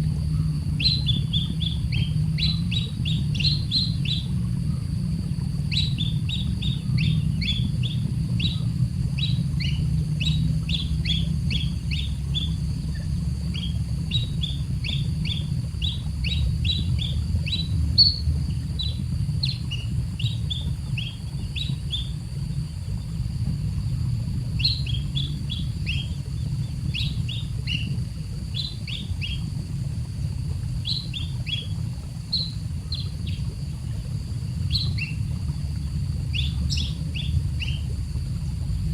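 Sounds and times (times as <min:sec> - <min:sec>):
low rumble: 0:00.0 - 0:38.9
baby bird peeping: 0:00.8 - 0:04.4, 0:28.5 - 0:29.5.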